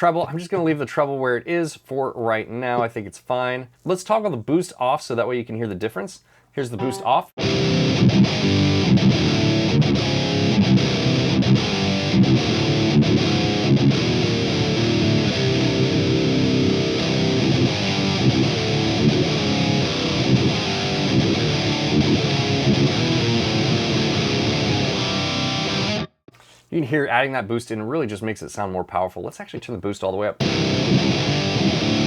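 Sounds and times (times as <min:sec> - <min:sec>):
distorted electric guitar riff: 0:06.8 - 0:26.1, 0:30.4 - 0:32.0.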